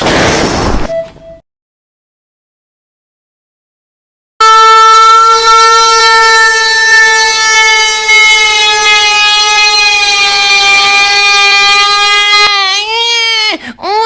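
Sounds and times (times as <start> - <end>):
loud horn-like blare: 4.4 - 12.5.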